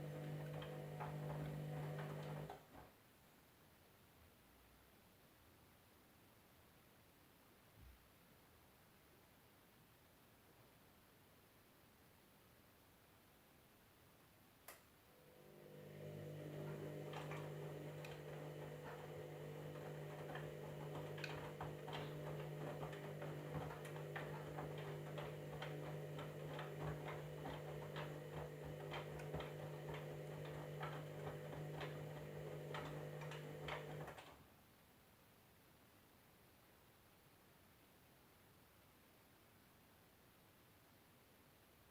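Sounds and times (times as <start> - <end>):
washing machine motor hum: 0.0 - 2.8, 15.1 - 34.3.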